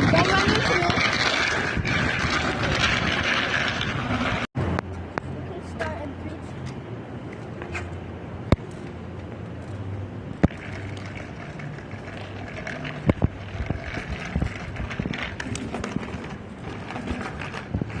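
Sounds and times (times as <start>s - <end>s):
bicycle tyres rolling: 0.0s - 5.0s, 7.3s - 18.0s.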